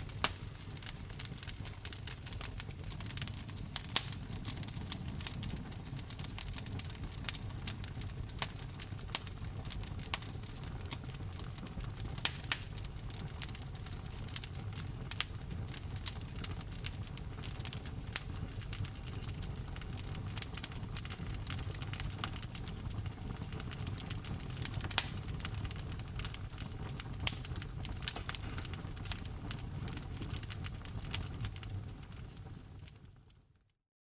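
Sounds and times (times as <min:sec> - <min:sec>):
wood fire crackling and popping: 0:00.0 - 0:33.6.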